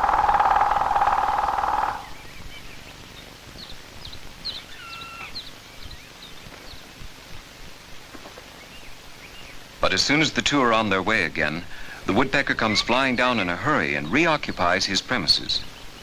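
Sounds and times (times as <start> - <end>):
bird chirps and calls: 0.0 - 6.9
faint film hiss: 0.0 - 16.0.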